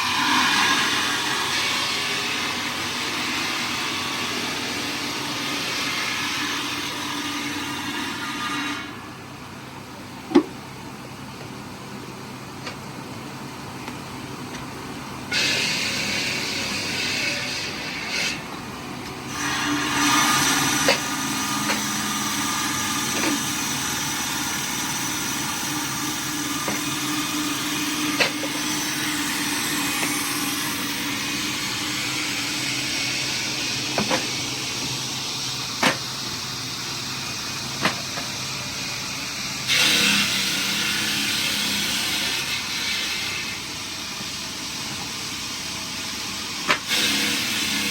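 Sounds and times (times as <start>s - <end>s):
heavy machinery humming: 8.7s - 41.9s.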